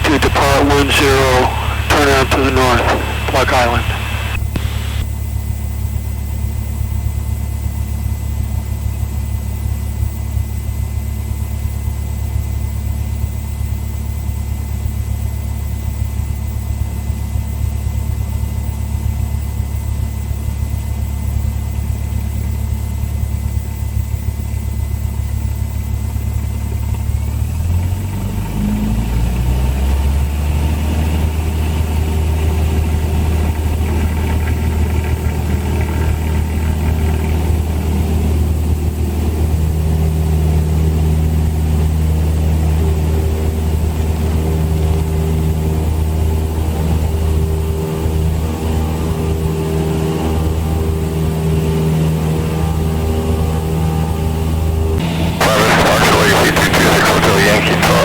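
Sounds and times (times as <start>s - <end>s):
aircraft piston engine running: 30.9s - 46.3s.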